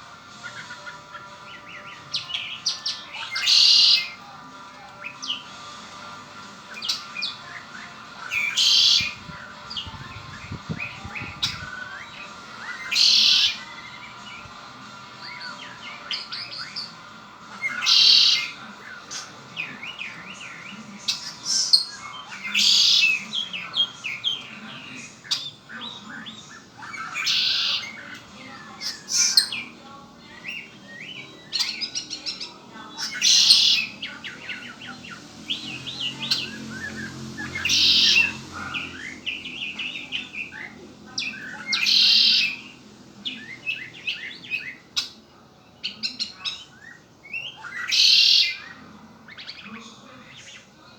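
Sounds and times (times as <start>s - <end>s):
blackbird song phrase: 0.0s - 50.9s
bird chirps and whistles: 8.3s - 9.2s, 11.2s - 13.7s, 41.3s - 42.7s.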